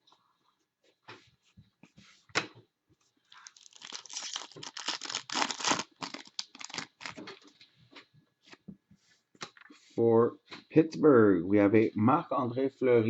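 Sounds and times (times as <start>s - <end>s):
wrapper crinkling and tearing: 3.3s - 7.5s
wrapper snapping: 3.3s - 7.5s.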